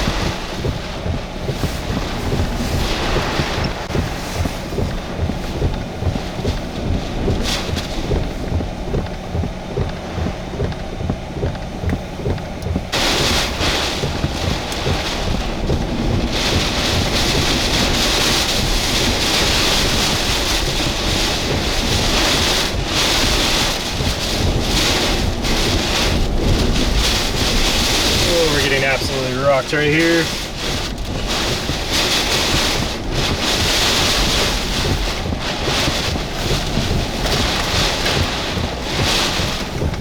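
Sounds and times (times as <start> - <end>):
driving rain: 0.0 - 40.0
wind buffeting microphone: 0.0 - 40.0
wind gusting hard: 0.0 - 40.0.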